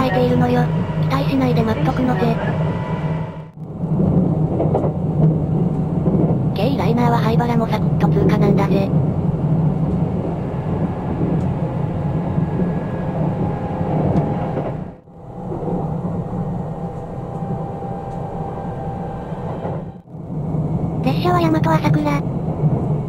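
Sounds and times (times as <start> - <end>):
train wheels rumbling on track: 0.0 - 23.0
faint steady whine: 9.0 - 23.0.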